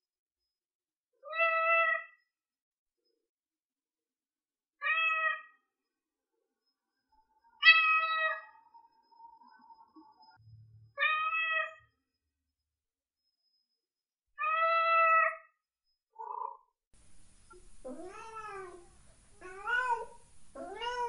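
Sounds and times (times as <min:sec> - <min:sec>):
cat meowing: 0:01.2 - 0:02.2, 0:04.8 - 0:05.6, 0:07.6 - 0:08.5, 0:11.0 - 0:11.8, 0:14.4 - 0:15.5, 0:17.8 - 0:21.0.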